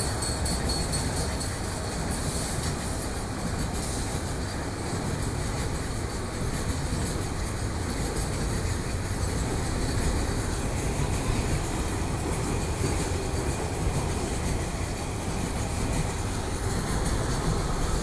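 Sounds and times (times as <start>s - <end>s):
train running on rails: 0.0s - 18.0s.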